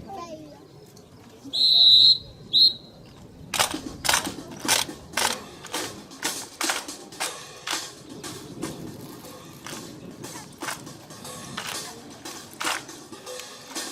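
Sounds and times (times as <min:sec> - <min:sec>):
whistle blasts: 0:01.5 - 0:03.0
sharp evenly spaced strikes: 0:03.6 - 0:13.9.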